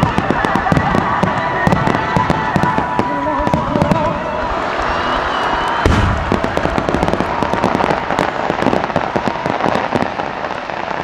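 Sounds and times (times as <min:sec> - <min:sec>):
firework burst: 0:00.0 - 0:11.0
fireworks crackling pops: 0:00.0 - 0:11.0.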